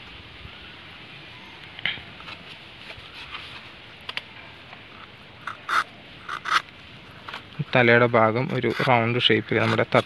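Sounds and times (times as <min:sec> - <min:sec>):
faint steady hiss: 0:00.0 - 0:10.0
knife scraping leaf: 0:05.4 - 0:07.5, 0:08.4 - 0:10.0.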